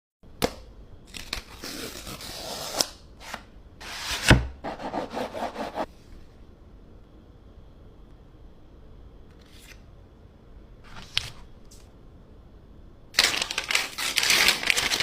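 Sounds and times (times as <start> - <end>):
cardboard and paper rustling: 13.2 - 15.0.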